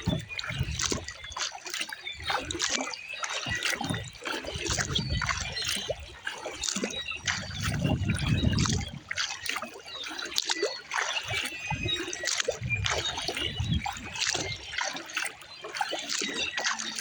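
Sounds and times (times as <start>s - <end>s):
wind rumble on microphone: 0.0s - 1.3s, 2.2s - 2.6s, 3.5s - 9.6s, 11.2s - 14.9s
water splashing and dripping: 0.0s - 17.0s.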